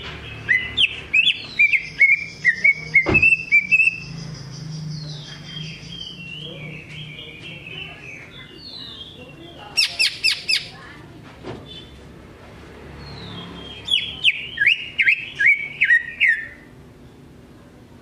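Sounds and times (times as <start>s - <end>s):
bird whistling song: 0.4s - 10.7s, 13.1s - 16.7s.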